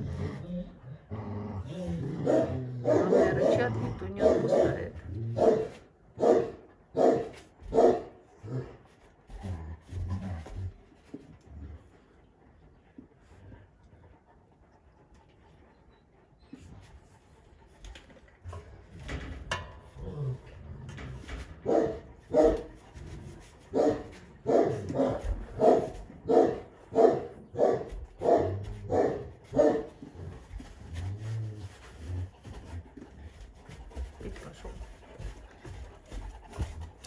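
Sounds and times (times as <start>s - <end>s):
dog barking deeply: 2.2s - 8.1s, 23.7s - 29.9s.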